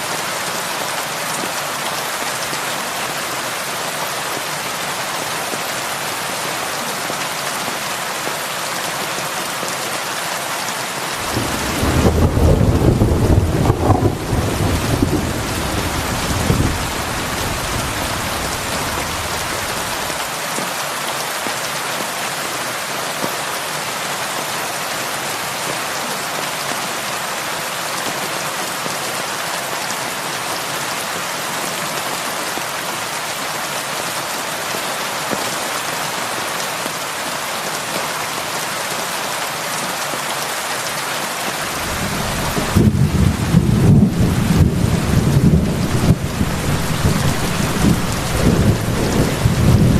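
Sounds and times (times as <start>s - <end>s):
heavy rain: 0.0s - 49.9s
thunder rumbling: 11.2s - 20.2s, 41.7s - 49.9s.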